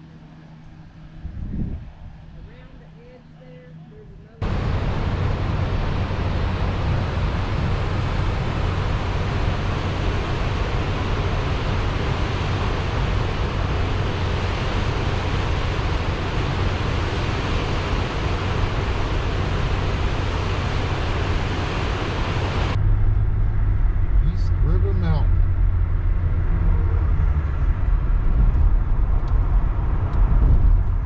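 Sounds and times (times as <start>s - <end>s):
rushing water roar: 4.4s - 22.8s.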